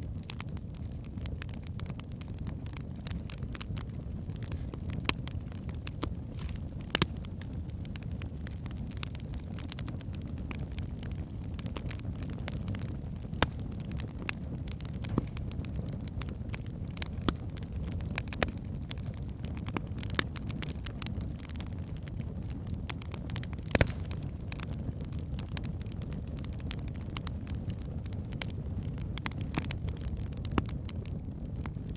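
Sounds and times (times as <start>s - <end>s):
burning logs crackling: 0.0s - 31.9s
low rumble of flame: 0.0s - 31.9s
logs popping: 2.7s - 27.5s.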